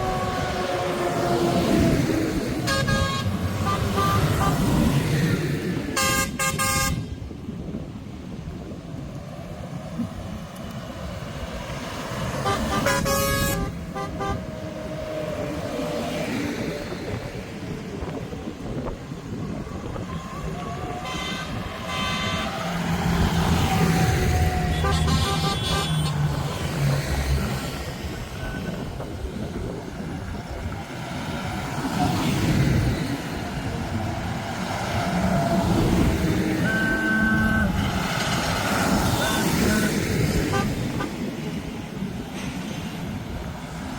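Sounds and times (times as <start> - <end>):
vehicle horn tooting: 2.6 - 4.6, 6.0 - 7.1, 12.4 - 14.5, 21.0 - 22.5, 24.7 - 26.3, 36.6 - 37.9, 39.1 - 41.2.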